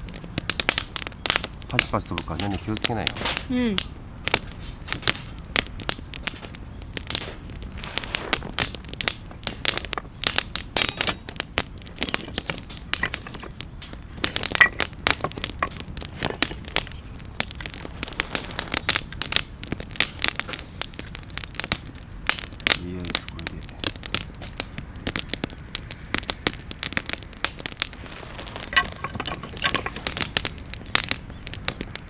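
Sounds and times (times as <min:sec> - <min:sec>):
campfire crackling and popping: 0:00.0 - 0:32.0.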